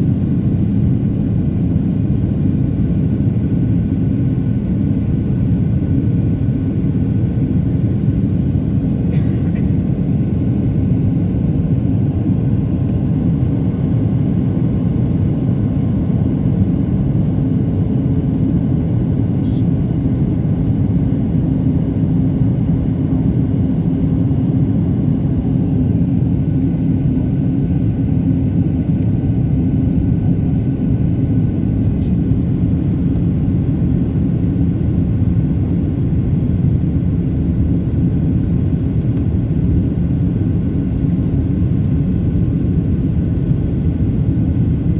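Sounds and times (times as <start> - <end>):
engine running low rumble: 18.3 - 44.9.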